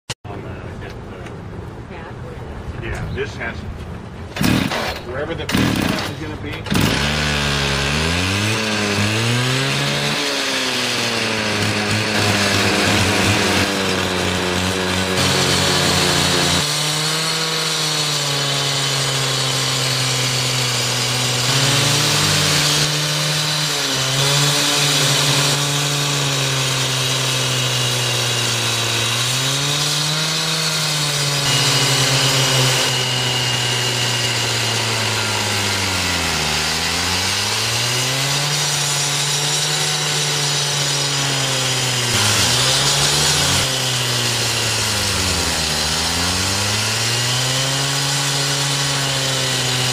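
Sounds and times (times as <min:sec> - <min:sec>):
concrete saw running: 0:04.3 - 0:49.9
saw blade grinding concrete: 0:04.3 - 0:49.9.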